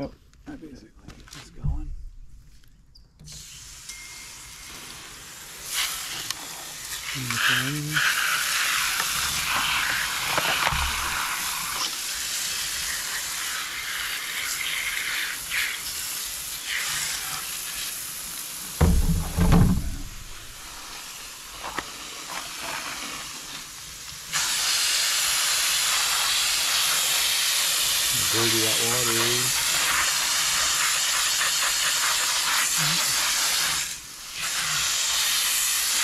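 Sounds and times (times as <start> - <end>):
water spraying: 3.3 - 36.0
low thumps: 18.8 - 20.8.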